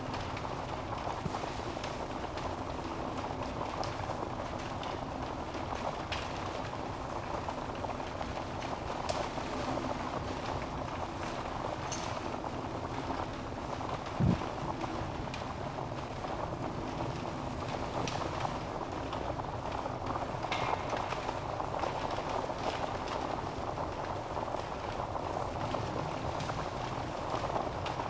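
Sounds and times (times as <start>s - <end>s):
logs crackling and popping: 0.1s - 28.0s
rush of flames: 6.3s - 28.0s.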